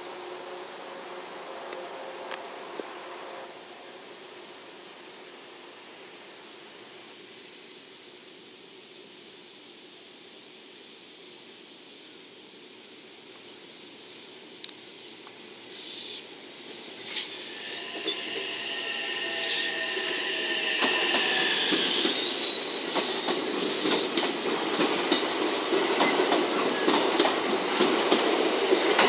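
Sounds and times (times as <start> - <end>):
wheels squealing on curve: 17.0 - 24.0
train wheels knocking over rail joints: 17.1 - 29.0.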